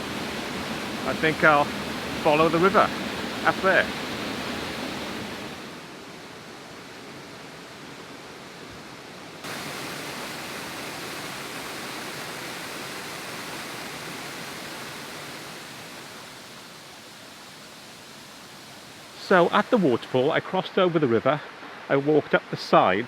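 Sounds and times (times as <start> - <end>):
waterfall and river rushing: 0.0 - 23.0.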